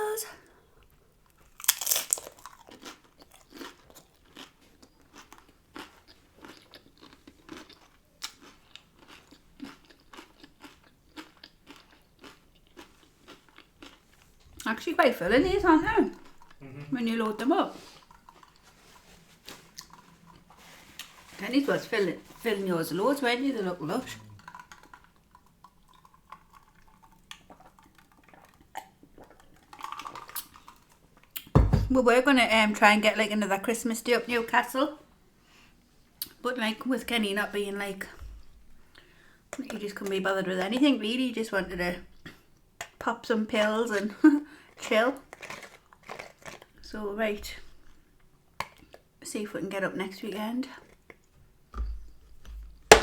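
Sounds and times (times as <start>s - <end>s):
quiet chewing: 0.4s - 31.5s, 42.1s - 43.0s, 43.9s - 49.1s, 50.7s - 51.4s
taco shell crunching: 1.2s - 14.7s, 17.8s - 21.4s, 24.2s - 31.5s, 45.2s - 46.8s.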